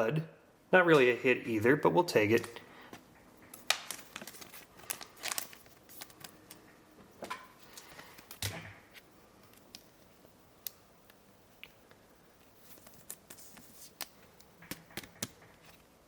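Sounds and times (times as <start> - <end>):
trading cards rustling: 3.5 - 6.6.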